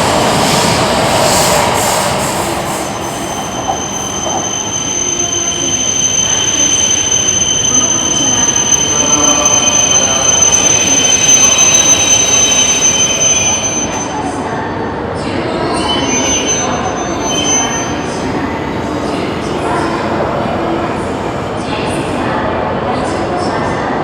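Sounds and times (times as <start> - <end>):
high-speed train passing: 0.0 - 24.0.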